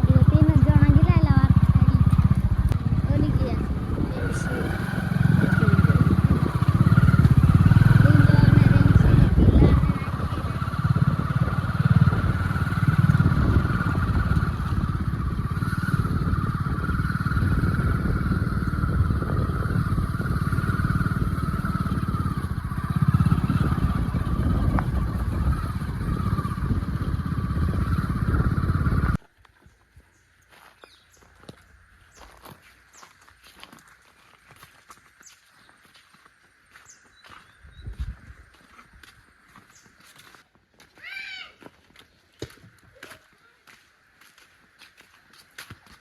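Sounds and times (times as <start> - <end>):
motorcycle engine running: 0.0 - 29.3.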